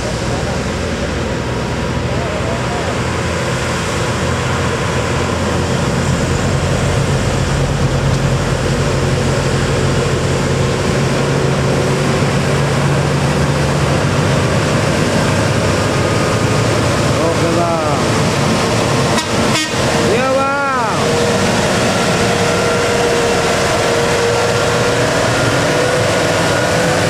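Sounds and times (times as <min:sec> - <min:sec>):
truck diesel engine under load: 0:00.0 - 0:27.0.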